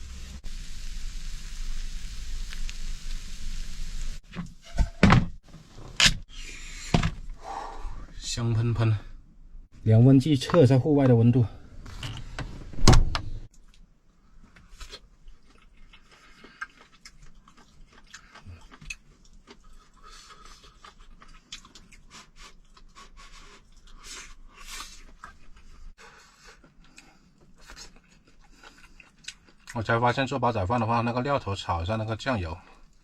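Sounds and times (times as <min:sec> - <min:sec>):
person chewing: 0:14.7 - 0:29.8.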